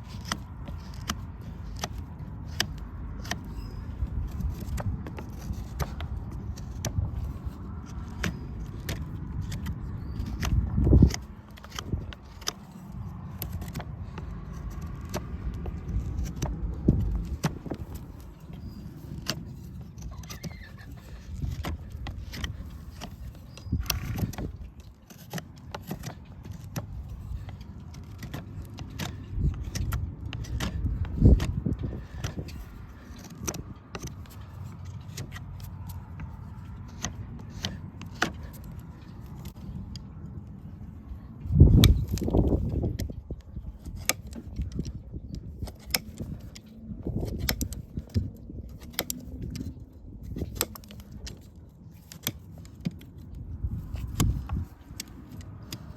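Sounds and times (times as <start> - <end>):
metal tools clicking and scraping hoof: 0.0 - 55.9.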